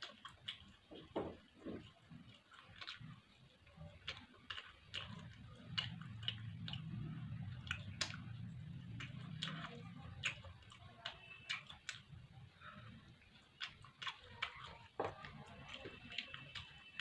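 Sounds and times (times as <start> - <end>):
mouth clicks and smacks: 0.0 - 17.0
person chewing food: 0.0 - 17.0.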